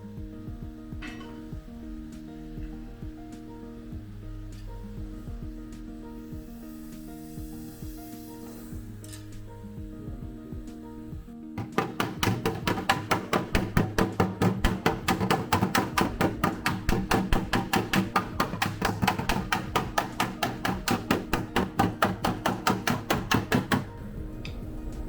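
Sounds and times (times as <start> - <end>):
hammer tapping sheet metal: 0.9 - 3.7, 11.6 - 24.6.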